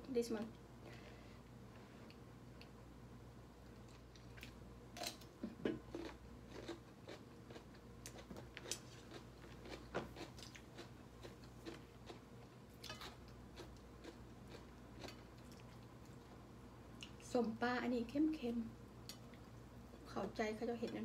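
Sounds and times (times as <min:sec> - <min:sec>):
chewing with small crunches: 0:03.7 - 0:17.3.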